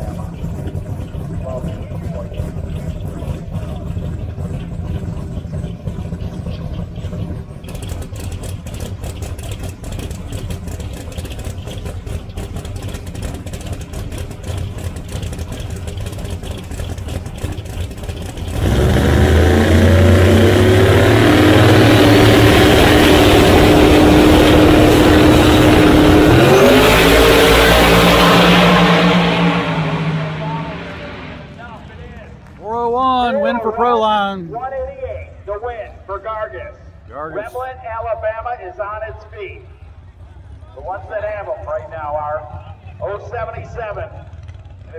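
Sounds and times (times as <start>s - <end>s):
drag racing cars idling roughly: 0.0s - 32.6s, 39.0s - 44.9s
race cars launching at full throttle: 0.0s - 34.4s.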